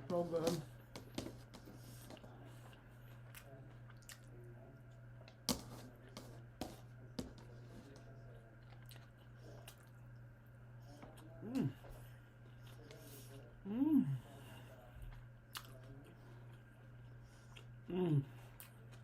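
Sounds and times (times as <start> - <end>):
steady low hum: 0.0 - 19.0
person chewing food: 0.8 - 4.4, 8.2 - 13.0, 15.1 - 19.0.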